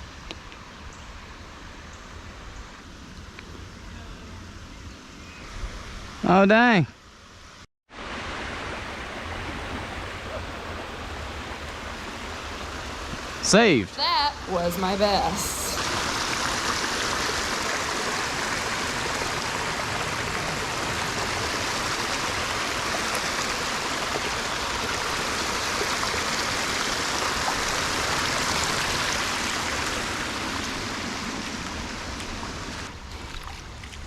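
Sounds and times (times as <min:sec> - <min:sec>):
creek water running: 0:07.9 - 0:34.0.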